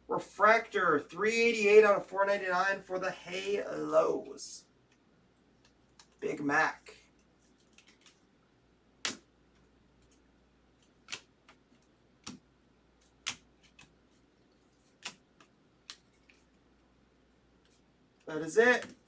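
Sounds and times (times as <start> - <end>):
trading cards clicking and snapping: 7.6 - 8.2, 9.0 - 9.3, 10.8 - 12.4, 13.0 - 14.0, 14.8 - 16.5, 18.7 - 19.0.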